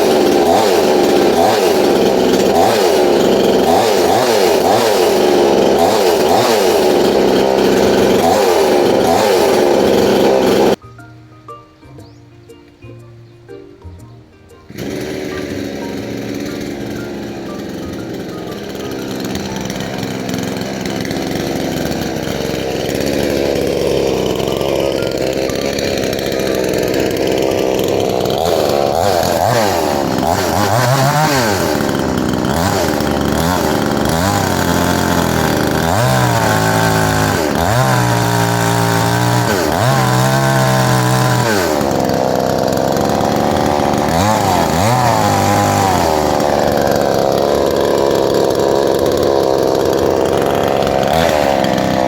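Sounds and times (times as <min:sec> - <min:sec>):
chainsaw engine revving: 0:00.0 - 0:10.8, 0:14.7 - 0:52.0.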